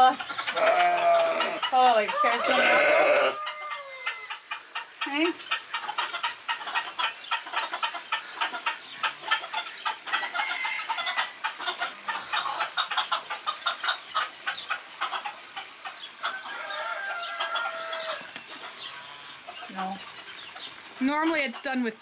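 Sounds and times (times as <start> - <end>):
chickens clucking: 0.0 - 22.0
chicken drawn-out call: 0.3 - 4.9, 16.2 - 19.3.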